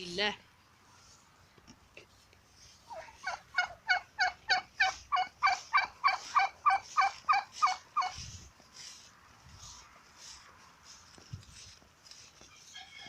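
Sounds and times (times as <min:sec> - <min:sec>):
fowl harsh calls: 0:02.7 - 0:08.3.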